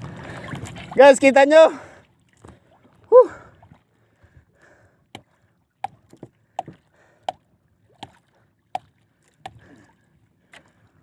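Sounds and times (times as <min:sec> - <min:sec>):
hollow knocks on boat hull: 0:05.1 - 0:07.4.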